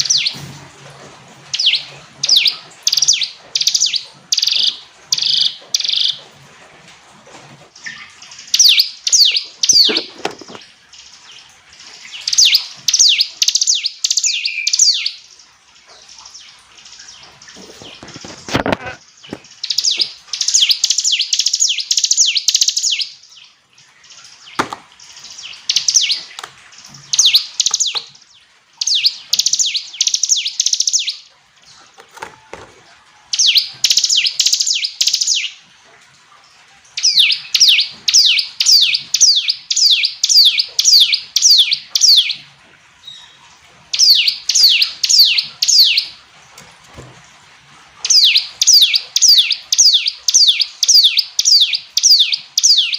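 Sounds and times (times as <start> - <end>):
bird singing sharp chips: 24.2 - 28.2, 43.1 - 46.2, 48.0 - 52.9.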